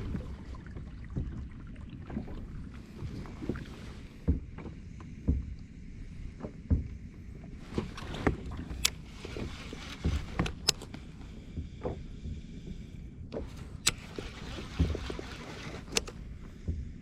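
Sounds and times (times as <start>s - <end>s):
water lapping against kayak hull: 0.0s - 17.0s
clicks and knocks from boat gear: 4.2s - 5.7s, 6.3s - 16.9s.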